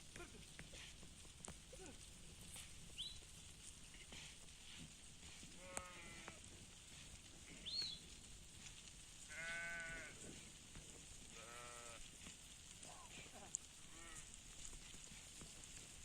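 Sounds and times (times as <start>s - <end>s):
sheep bleating: 5.5s - 6.5s, 9.3s - 10.4s, 11.3s - 12.1s, 13.0s - 14.3s.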